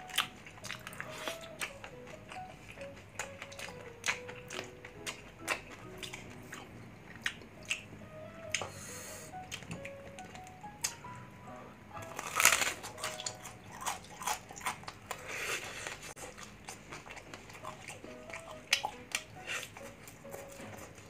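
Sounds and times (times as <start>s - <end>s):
crunchy bites and chewing: 12.0s - 20.8s.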